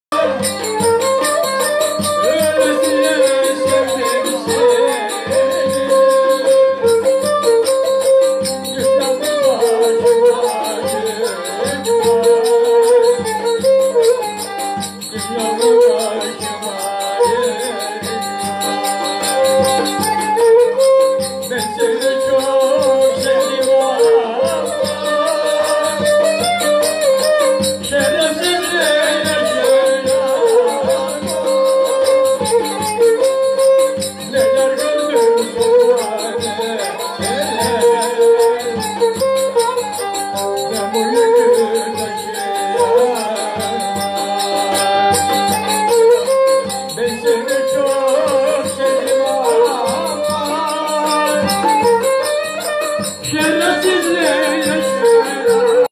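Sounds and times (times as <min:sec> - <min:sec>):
jingling percussion: 0:00.1 - 0:55.9.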